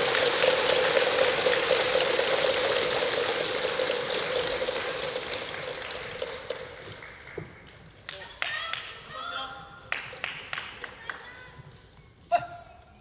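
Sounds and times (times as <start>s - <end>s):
plastic noisemakers rattling: 0.0s - 7.0s
crowd clapping: 0.0s - 11.5s.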